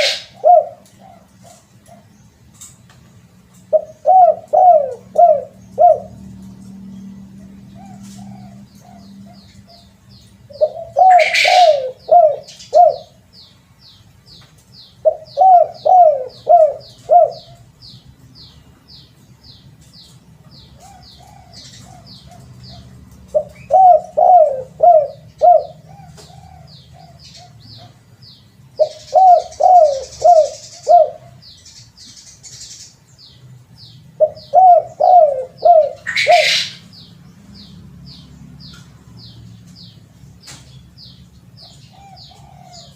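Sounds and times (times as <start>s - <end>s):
dove cooing: 0.0s - 2.1s, 3.5s - 13.2s, 15.0s - 17.8s, 20.6s - 28.1s, 28.8s - 31.5s, 34.1s - 36.9s, 41.6s - 42.9s.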